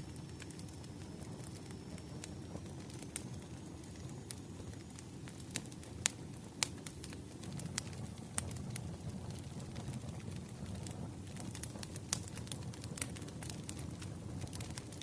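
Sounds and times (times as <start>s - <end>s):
fire pops and snaps: 0.0s - 15.0s
wood fire crackling: 0.0s - 15.0s.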